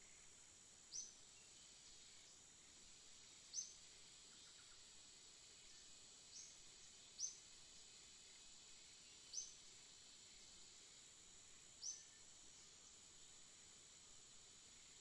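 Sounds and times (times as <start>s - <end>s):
songbird chirping: 0.0s - 2.4s, 3.4s - 4.9s, 5.6s - 9.7s, 11.8s - 12.9s
faint high hiss: 0.0s - 15.0s.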